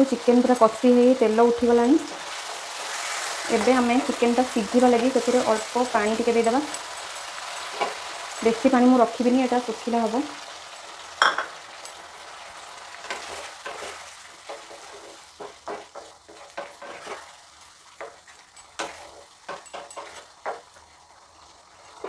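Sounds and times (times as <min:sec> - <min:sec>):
food sizzling in a pan: 0:00.0 - 0:22.0
spatula scraping a pan: 0:12.9 - 0:21.0.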